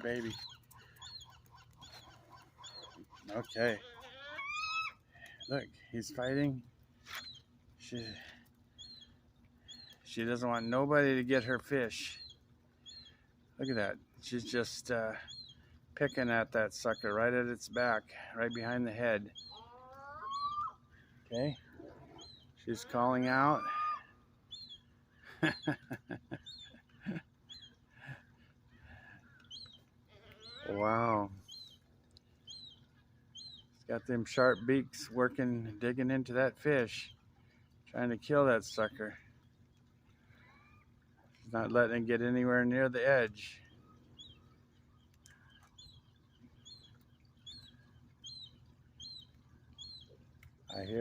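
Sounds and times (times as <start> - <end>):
seagull calling: 0.0 - 6.5, 15.1 - 37.2, 40.2 - 41.0, 43.3 - 51.0.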